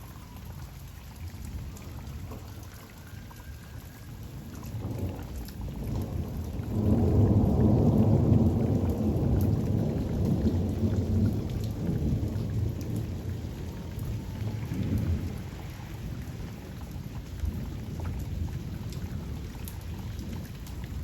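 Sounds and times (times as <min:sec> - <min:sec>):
steady rain: 0:00.0 - 0:21.0
rolling thunder: 0:04.7 - 0:21.0.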